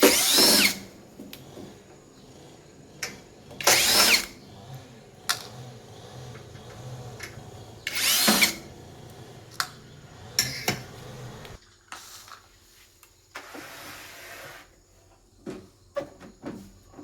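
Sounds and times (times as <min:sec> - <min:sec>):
power tool motor whine: 0:00.0 - 0:11.6.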